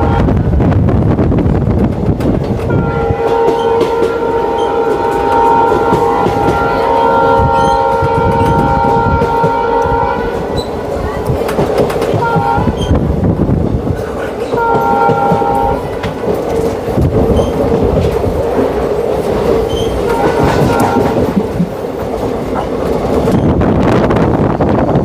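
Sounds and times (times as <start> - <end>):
multi-tone train horn: 0.0 - 0.6, 2.7 - 10.7, 12.1 - 13.0, 14.5 - 16.0, 19.9 - 21.4
train wheels rattling on track: 0.0 - 25.0.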